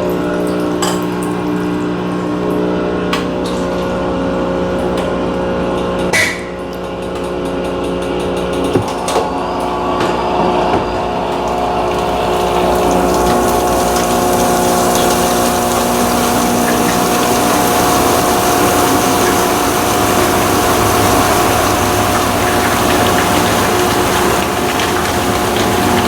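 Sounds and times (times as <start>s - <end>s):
washing machine motor hum: 6.7s - 26.0s
water churning: 11.0s - 26.0s.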